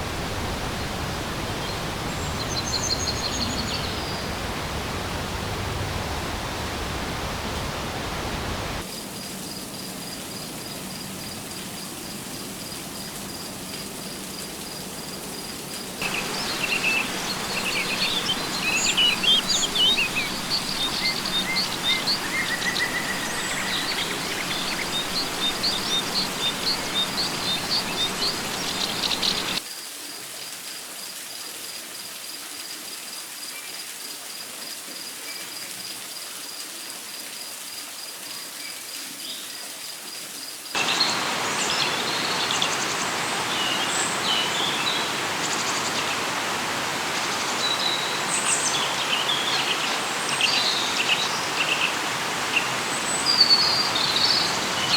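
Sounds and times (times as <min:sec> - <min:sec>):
steady hiss: 0:00.0 - 0:13.1, 0:13.8 - 0:29.6, 0:40.8 - 0:54.9
rapidly pulsing insect trill: 0:14.1 - 0:29.6
birds chirping and calling: 0:16.0 - 0:29.6.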